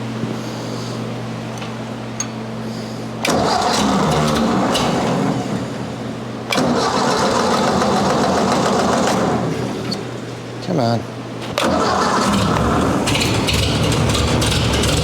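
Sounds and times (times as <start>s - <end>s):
tractor engine cranked by starter: 3.2s - 10.0s, 11.4s - 15.0s.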